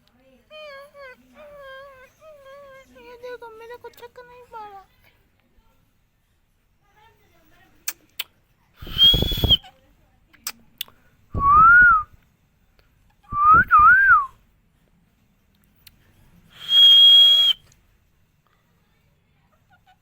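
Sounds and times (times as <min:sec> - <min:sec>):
parrot whistling: 0:08.8 - 0:09.6, 0:16.6 - 0:17.6.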